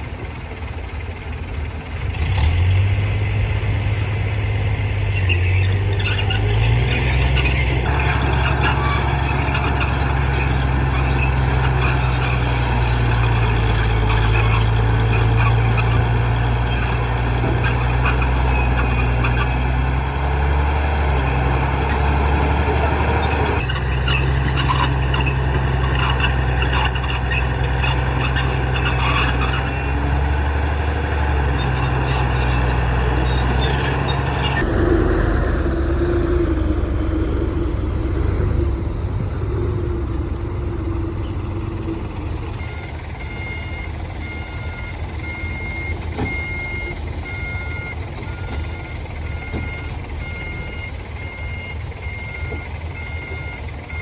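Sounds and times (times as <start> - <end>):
diesel engine running: 0.0 - 54.0
reversing alarm beeping: 42.6 - 54.0.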